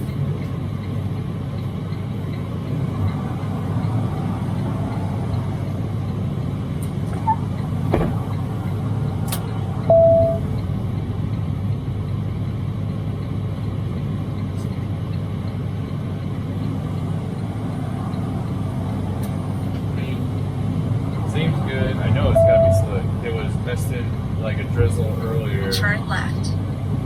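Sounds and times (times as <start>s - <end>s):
truck diesel engine running: 0.0s - 27.0s
short beep: 9.9s - 10.6s, 22.3s - 22.9s.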